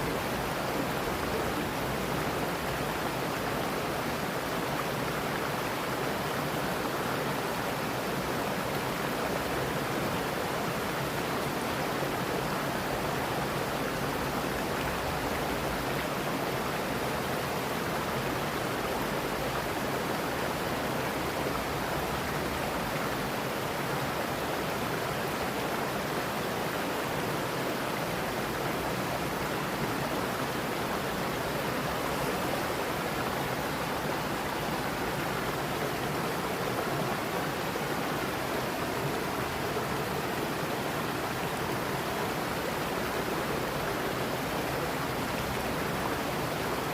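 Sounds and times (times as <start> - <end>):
stream rushing over rocks: 0.0 - 46.9.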